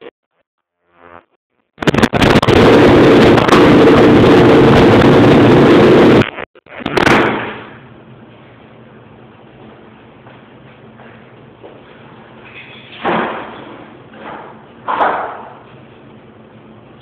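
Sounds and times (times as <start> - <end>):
loud engine running with pops: 1.8 - 7.9, 13.0 - 16.2.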